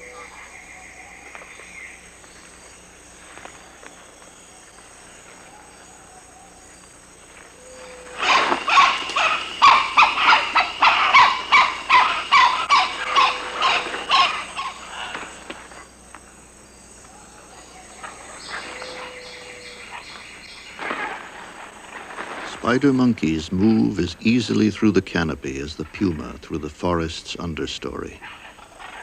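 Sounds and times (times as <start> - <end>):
forest ambience: 0.0 - 29.0
animal calling rapidly: 7.6 - 15.2.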